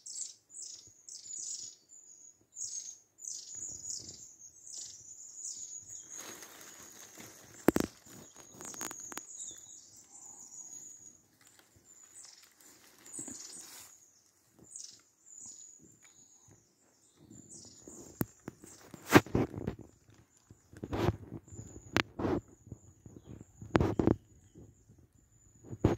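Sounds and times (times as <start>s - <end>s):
small birds singing: 0.0s - 25.9s
rustling: 5.9s - 15.1s.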